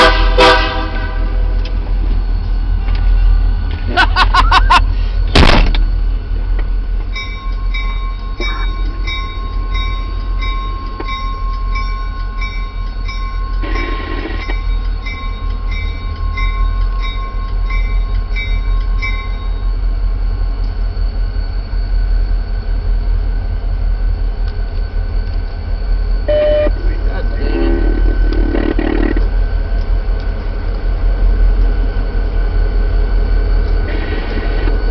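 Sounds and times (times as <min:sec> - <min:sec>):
train rumbling past: 0:00.0 - 0:34.9
sharp bang: 0:05.3 - 0:05.8.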